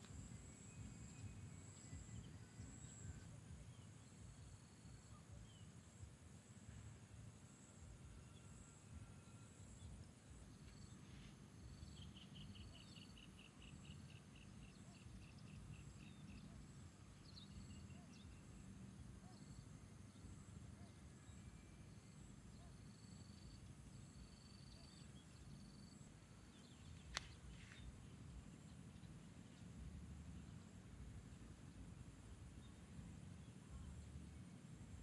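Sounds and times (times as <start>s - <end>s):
high insect hum: 0.0s - 35.0s
faint bird chirps: 8.1s - 35.0s
sharp click: 27.1s - 27.4s.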